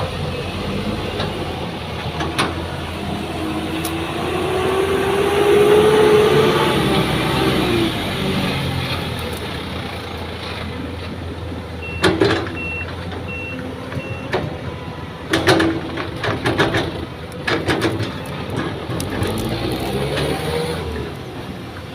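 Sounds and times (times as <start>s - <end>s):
heavy truck engine running: 0.0s - 21.9s
reversing alarm beeps: 11.8s - 15.0s.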